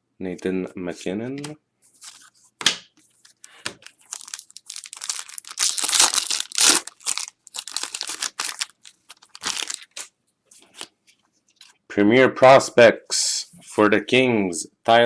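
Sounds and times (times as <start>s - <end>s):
packaging crinkling and tearing: 3.2s - 10.9s.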